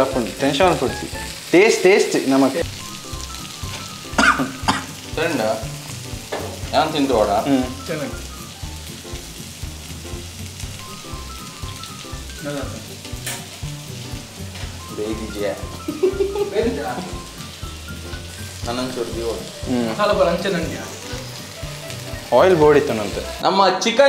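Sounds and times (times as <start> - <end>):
chicken sizzling in hot oil: 0.0 - 23.4
spatula knocking against pan: 6.3 - 6.6.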